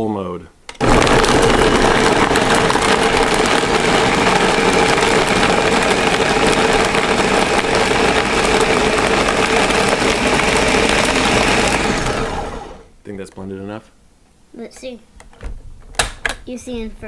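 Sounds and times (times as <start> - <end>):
blender motor whine: 0.8 - 12.9.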